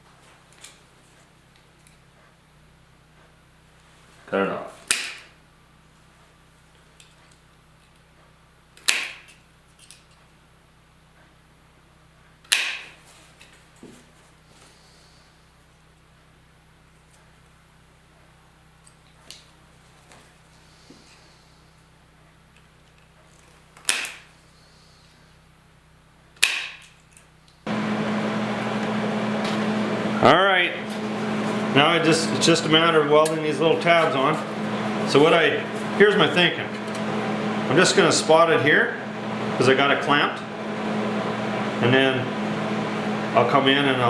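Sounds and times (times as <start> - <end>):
tin snips snapping through steel: 4.9 - 5.3, 8.8 - 10.0, 12.5 - 13.0, 23.8 - 24.3, 26.4 - 27.2
metal snips cutting: 8.8 - 10.0.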